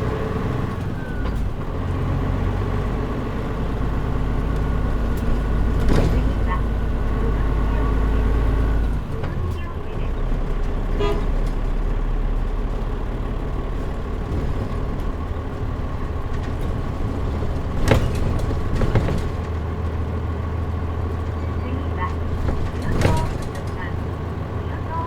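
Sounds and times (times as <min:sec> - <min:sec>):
bus diesel engine hum: 0:00.0 - 0:25.0
sharp knocks or rattles: 0:13.6 - 0:20.0, 0:22.1 - 0:24.0.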